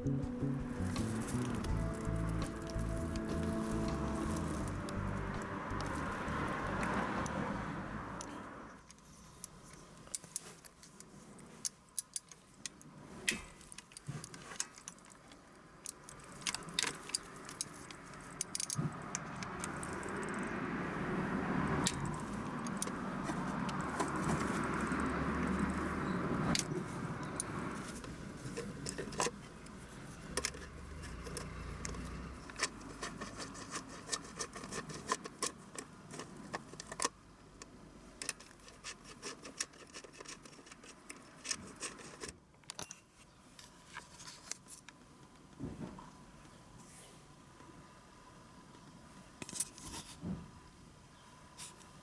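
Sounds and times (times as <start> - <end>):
rushing noise with low hum: 0.0 - 8.7.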